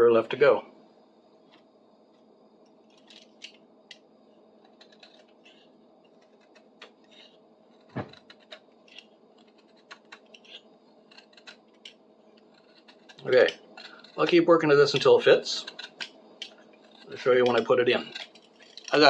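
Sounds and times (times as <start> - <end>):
light clicks and scrapes: 4.6 - 19.0.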